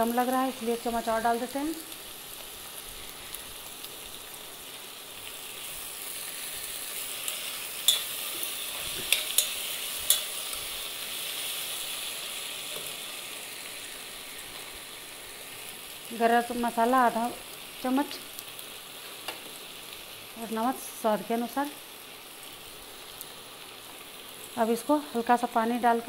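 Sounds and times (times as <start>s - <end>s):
masala sizzling in hot oil: 0.0s - 26.0s
spoon stirring in pot: 7.9s - 10.4s.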